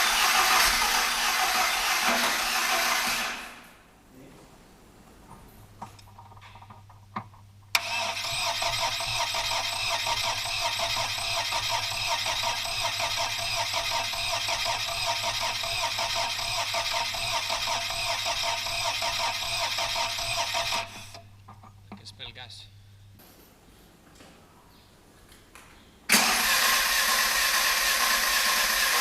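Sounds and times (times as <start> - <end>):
starter motor cranking engine: 0.0 - 3.6, 7.7 - 21.2, 26.1 - 29.0.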